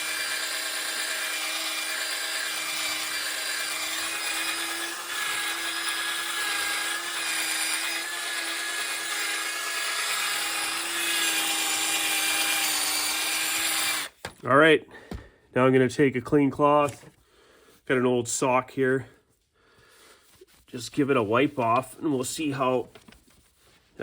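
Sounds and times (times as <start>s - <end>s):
electric power tool humming: 0.0s - 14.2s.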